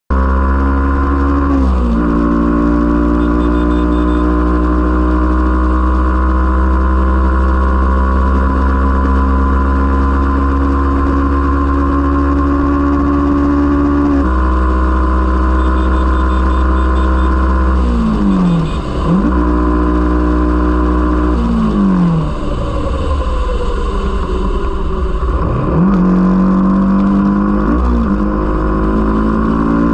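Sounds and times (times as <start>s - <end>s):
motorcycle engine revving: 0.1s - 29.9s.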